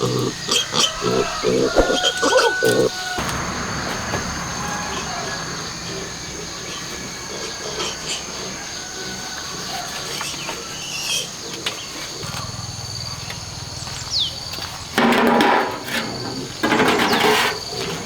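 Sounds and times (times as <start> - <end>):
high-pitched insect drone: 0.0 - 11.5
loud noisy bursts: 3.2 - 7.4.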